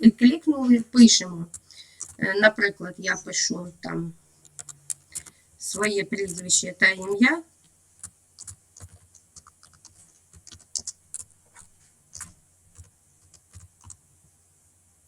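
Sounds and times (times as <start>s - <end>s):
typing on keyboard: 1.5s - 2.3s, 4.4s - 7.2s, 8.0s - 14.0s.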